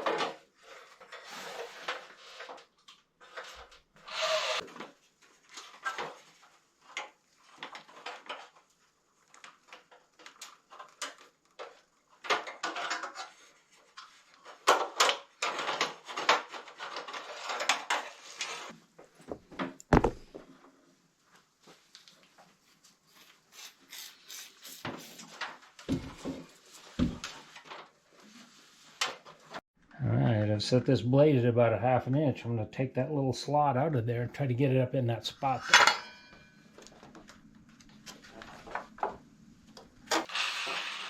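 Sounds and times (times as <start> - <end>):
wood and tools knocking and scraping: 9.5 - 20.8, 24.9 - 29.6.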